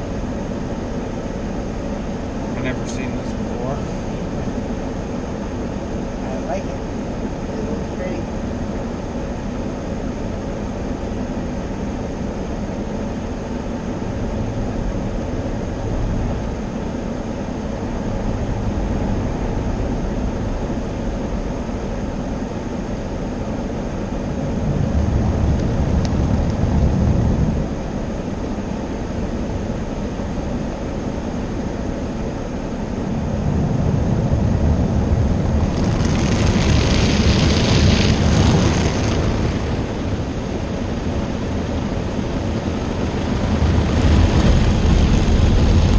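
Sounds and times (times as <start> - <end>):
car wash machinery rumbling: 0.0 - 45.9
hissing water spray: 35.6 - 40.1.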